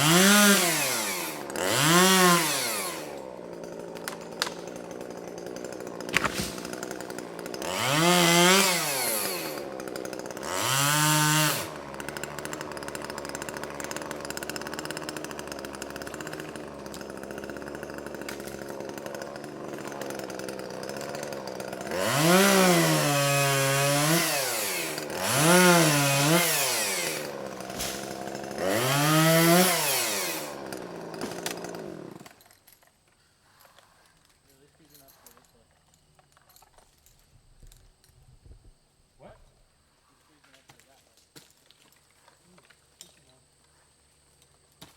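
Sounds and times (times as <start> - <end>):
chainsaw revving: 0.0 - 32.4
chainsaw idling: 0.0 - 32.5.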